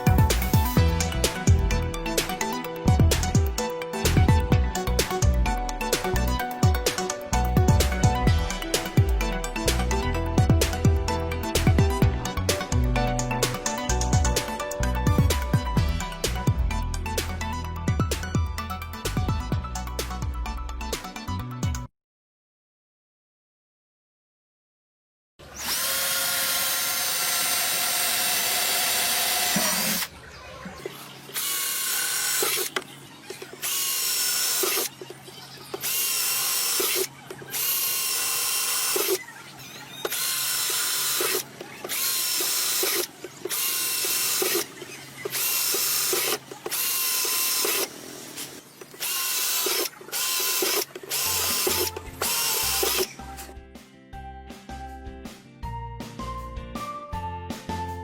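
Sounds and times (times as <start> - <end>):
power drill motor whining: 25.4 - 30.2, 30.9 - 53.5.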